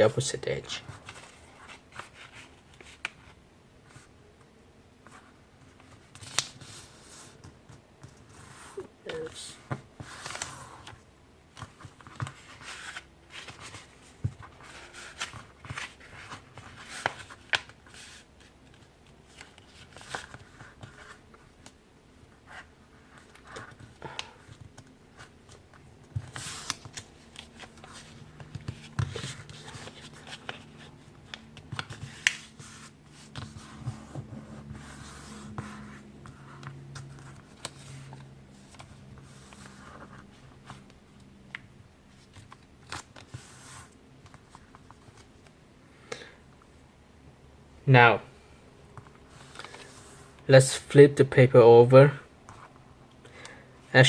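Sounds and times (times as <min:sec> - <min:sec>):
paper crinkling and rustling: 0:08.0 - 0:21.7, 0:22.5 - 0:45.6, 0:49.0 - 0:50.2.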